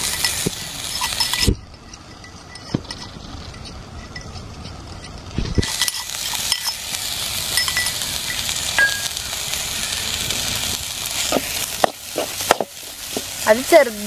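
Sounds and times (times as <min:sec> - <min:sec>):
steel ladle scraping pan: 0:00.0 - 0:10.1
food sizzling in hot oil: 0:00.0 - 0:14.0.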